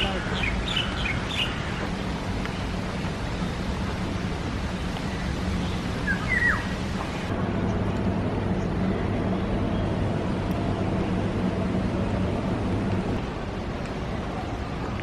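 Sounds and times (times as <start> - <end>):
steady rushing noise: 0.0 - 15.0
low hum: 1.9 - 14.8
bird chirps: 5.2 - 6.8.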